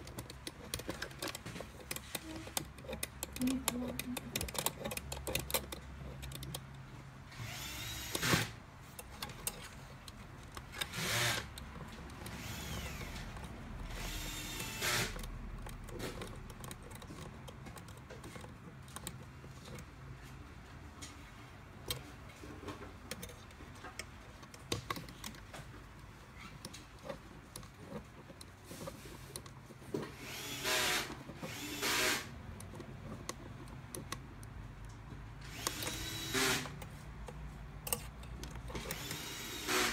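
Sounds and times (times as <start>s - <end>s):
handling small parts clicks: 0.0s - 39.9s
electric screwdriver whining: 7.3s - 8.6s, 10.6s - 15.3s, 30.1s - 32.3s, 35.4s - 36.8s, 38.7s - 39.9s.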